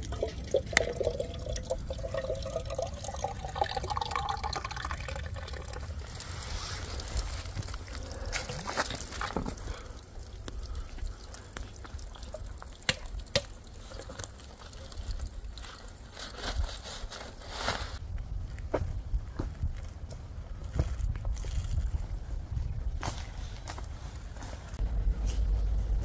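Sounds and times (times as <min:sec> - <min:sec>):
liquid pouring into container: 0:00.0 - 0:08.2, 0:08.8 - 0:16.2
rustling: 0:06.1 - 0:09.8, 0:15.6 - 0:18.0.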